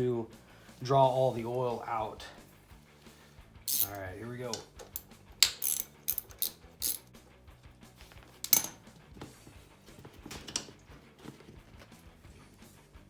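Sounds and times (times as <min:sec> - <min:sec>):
faint background music: 0:00.0 - 0:13.0
sharp metallic clink: 0:03.7 - 0:04.1, 0:04.9 - 0:07.1.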